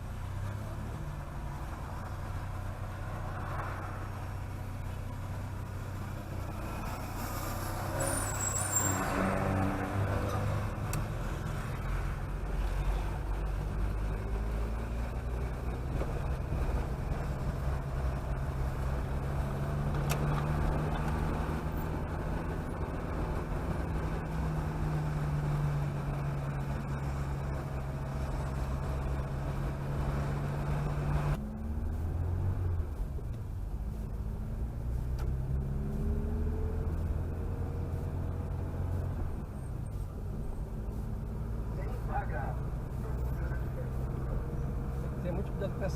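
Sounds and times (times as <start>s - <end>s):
tyre and road noise: 0.0s - 45.9s
car engine running: 10.3s - 45.9s.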